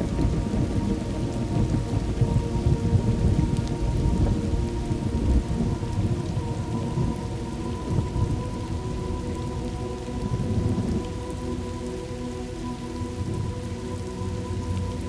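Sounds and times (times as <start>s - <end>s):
rolling thunder: 0.0s - 9.6s
steady rain: 0.0s - 15.0s.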